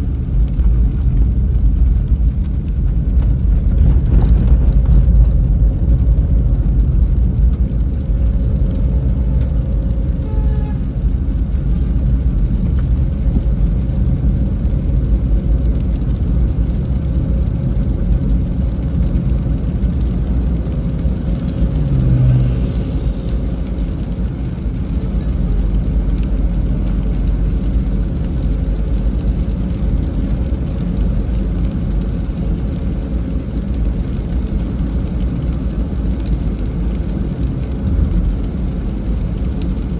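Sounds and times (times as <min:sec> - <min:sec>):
car engine rumble: 0:00.0 - 0:39.9
car tyres on wet road: 0:00.0 - 0:39.9.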